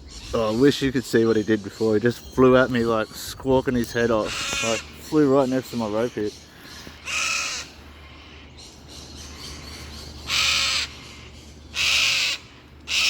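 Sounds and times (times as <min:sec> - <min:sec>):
cockatoo screeching: 0:04.1 - 0:05.2, 0:06.8 - 0:07.8, 0:10.3 - 0:13.0.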